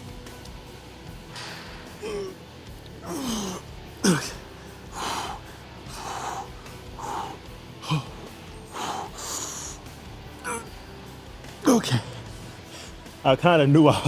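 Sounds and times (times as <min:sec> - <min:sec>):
faint background music: 0:00.0 - 0:14.0
man grunting: 0:02.0 - 0:02.4, 0:03.0 - 0:04.4, 0:05.0 - 0:09.7, 0:10.4 - 0:10.8, 0:11.6 - 0:12.4
man breathing hard: 0:03.0 - 0:10.8, 0:11.6 - 0:13.2.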